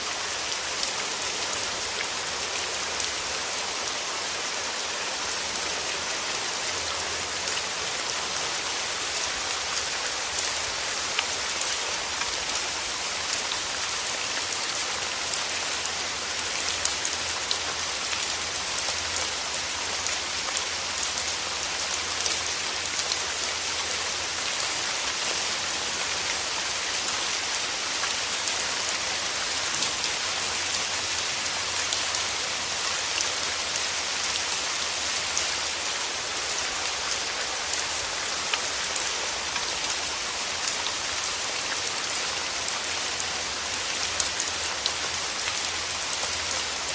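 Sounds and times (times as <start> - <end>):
rain falling: 0.0 - 46.9.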